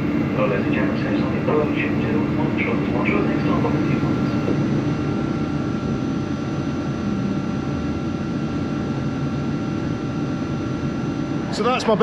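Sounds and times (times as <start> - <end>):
train running rumble: 0.0 - 8.9
faint steady whine: 0.0 - 12.0.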